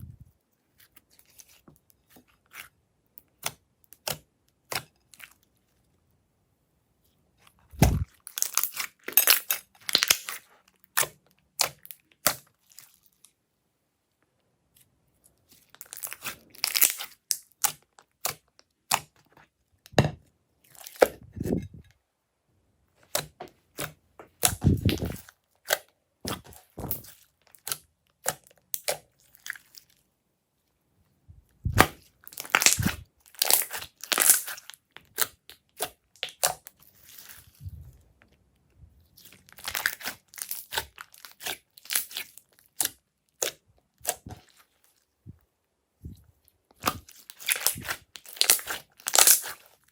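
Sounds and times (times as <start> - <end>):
slime crackling and popping: 7.8 - 12.4, 15.8 - 19.1, 31.7 - 37.3, 39.2 - 44.3, 46.8 - 49.9.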